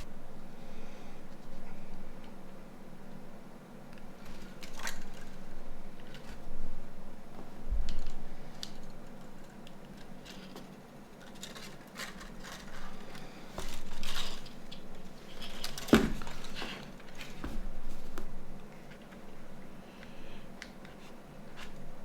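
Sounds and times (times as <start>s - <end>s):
plastic parts clicking and scraping: 4.2s - 6.4s, 7.8s - 17.5s.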